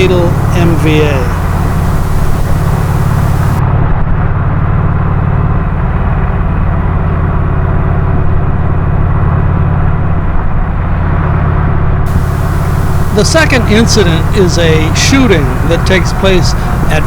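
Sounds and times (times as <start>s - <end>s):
motorcycle engine humming: 0.0s - 3.6s, 12.0s - 17.0s.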